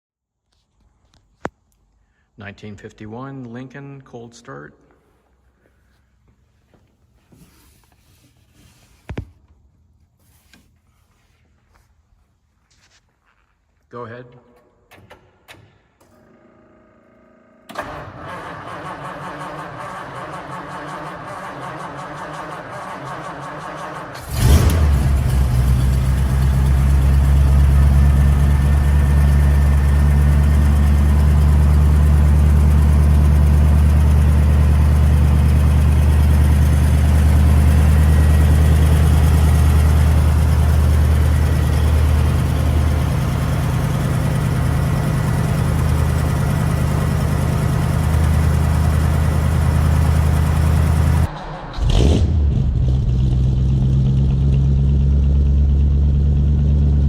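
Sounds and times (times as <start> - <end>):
car engine idling: 17.8 - 51.8, 52.5 - 57.0.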